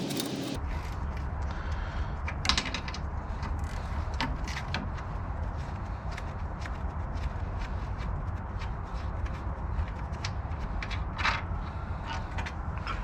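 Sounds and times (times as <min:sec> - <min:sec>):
hand tools clicking and tapping: 0:00.0 - 0:00.6.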